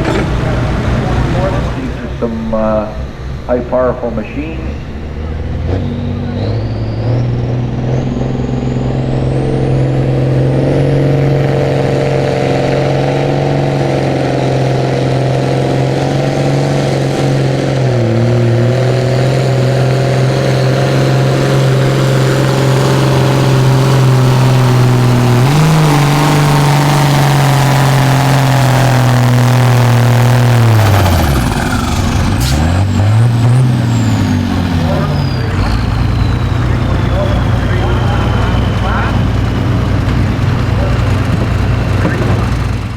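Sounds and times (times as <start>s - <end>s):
tractor engine revving under load: 0.0s - 42.9s.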